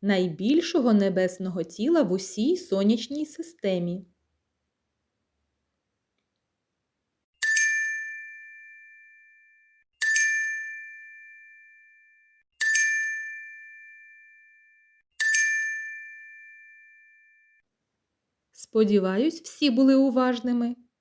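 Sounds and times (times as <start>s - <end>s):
bright bell chime: 7.4s - 9.1s, 10.0s - 11.6s, 12.6s - 14.1s, 15.2s - 17.3s.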